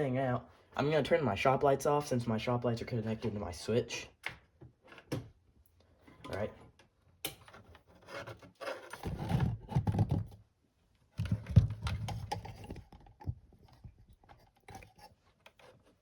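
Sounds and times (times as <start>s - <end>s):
scraping and rustling: 7.6s - 10.4s, 11.2s - 16.0s.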